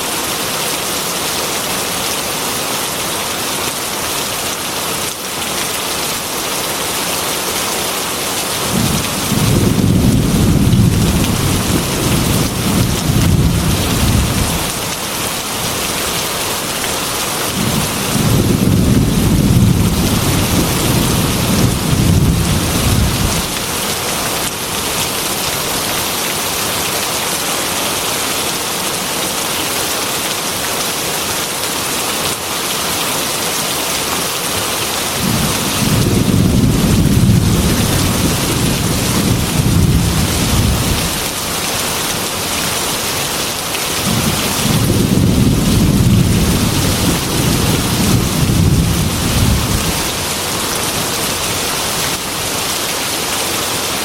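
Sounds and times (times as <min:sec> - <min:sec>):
heavy rain on a metal roof: 0:00.0 - 0:54.0
rolling thunder: 0:08.7 - 0:14.7, 0:17.6 - 0:23.5, 0:35.2 - 0:41.2, 0:44.0 - 0:50.0.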